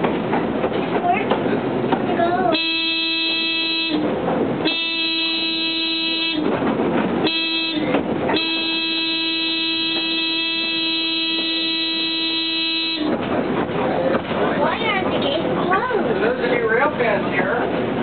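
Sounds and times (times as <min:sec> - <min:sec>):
streetcar running noise: 0:00.0 - 0:18.0
streetcar horn blasts: 0:02.4 - 0:13.6.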